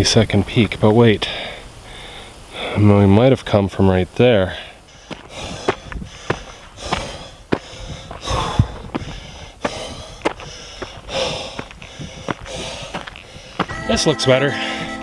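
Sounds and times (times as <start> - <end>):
person breathing hard: 1.3 - 2.8, 4.5 - 13.7
footsteps crunching on trail: 4.4 - 15.0.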